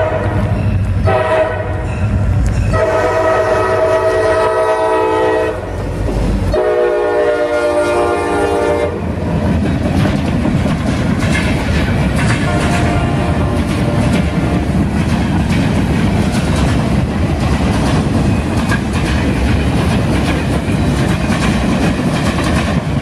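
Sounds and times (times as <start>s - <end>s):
locomotive air horn blasts: 0.0s - 1.9s, 2.7s - 5.8s, 6.5s - 9.0s, 12.4s - 13.6s
train wheels clacking on rails: 7.7s - 23.0s.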